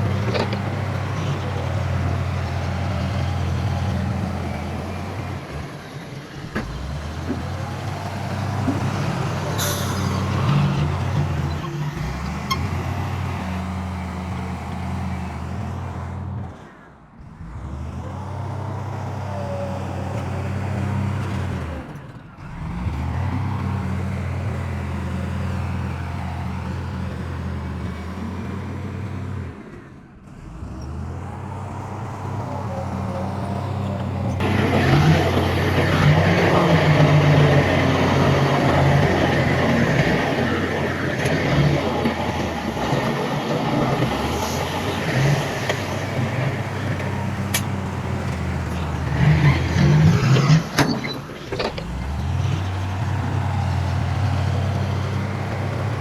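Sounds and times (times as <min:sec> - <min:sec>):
rough clattering noise: 0:00.0 - 0:03.8, 0:06.4 - 0:13.0, 0:34.0 - 0:56.0
heavy machinery diesel engine: 0:00.0 - 0:56.0.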